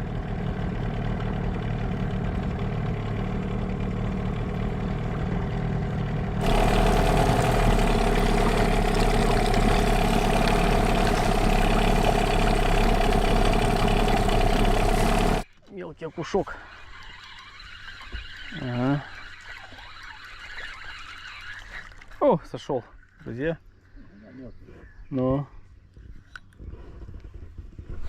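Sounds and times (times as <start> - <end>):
outboard motor running: 0.0 - 15.4.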